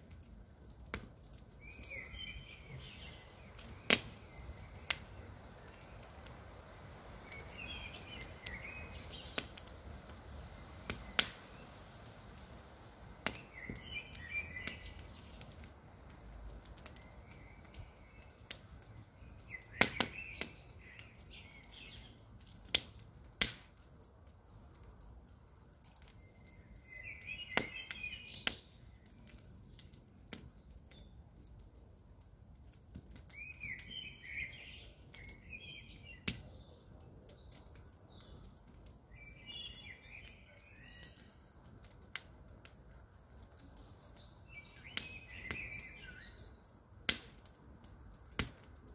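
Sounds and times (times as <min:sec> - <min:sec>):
campfire crackling and popping: 0:00.0 - 0:48.9
bird chirping: 0:01.6 - 0:06.0, 0:07.2 - 0:09.5, 0:13.4 - 0:15.4, 0:26.2 - 0:29.8, 0:33.3 - 0:38.4, 0:39.1 - 0:41.7, 0:43.6 - 0:46.8.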